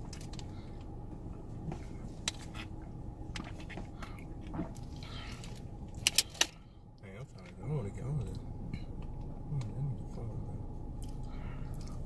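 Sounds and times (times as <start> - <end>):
person chewing food: 11.0 - 12.0.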